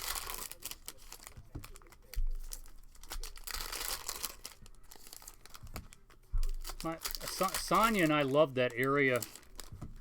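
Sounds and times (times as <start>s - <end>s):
foil wrappers crinkling and tearing: 0.0s - 9.9s.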